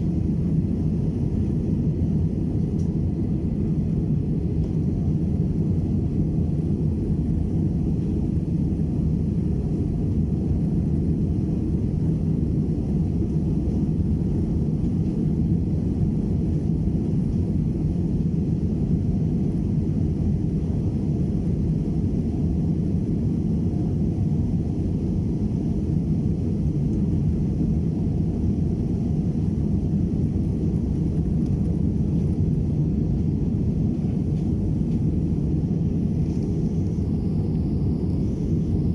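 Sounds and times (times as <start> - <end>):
jet engines roaring: 0.0 - 38.9
airflow past fuselage: 28.2 - 38.9.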